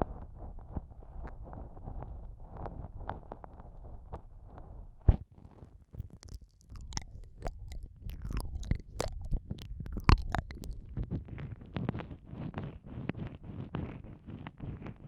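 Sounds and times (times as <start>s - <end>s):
lip smacks: 6.0s - 11.1s
tongue clicks: 6.0s - 11.2s
wet licking: 6.0s - 11.2s.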